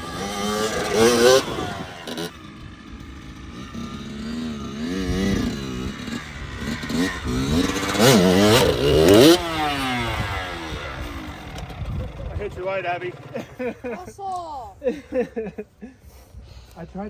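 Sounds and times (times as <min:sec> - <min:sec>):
dirt bike engine revving: 0:00.0 - 0:14.1.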